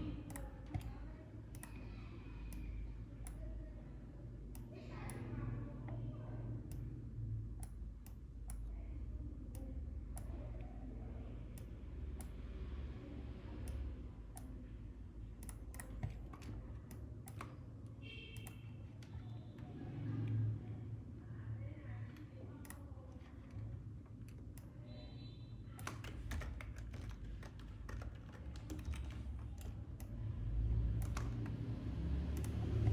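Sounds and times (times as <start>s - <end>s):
steady low hum: 0.0s - 32.9s
mouse and keyboard clicks: 30.9s - 31.6s.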